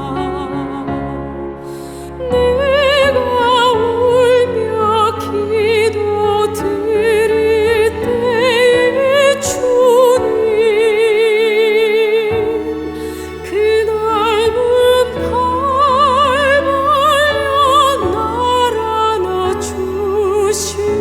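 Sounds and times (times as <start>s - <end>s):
ballad accompaniment with bass: 0.0s - 21.0s
person singing with vibrato: 0.0s - 21.0s.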